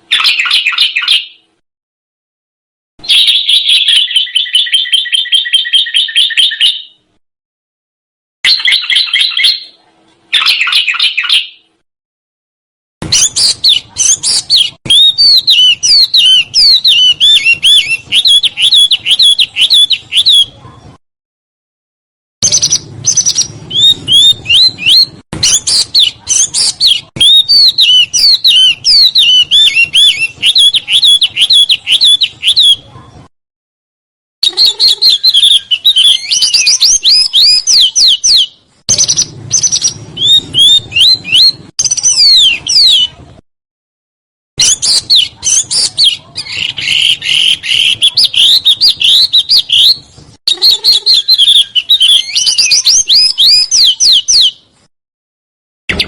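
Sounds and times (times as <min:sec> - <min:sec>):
songbird singing: 0:00.0 - 0:01.6, 0:03.0 - 0:07.1, 0:08.5 - 0:11.7, 0:13.0 - 0:20.6, 0:22.4 - 0:32.9, 0:34.4 - 0:43.2, 0:44.6 - 0:54.7.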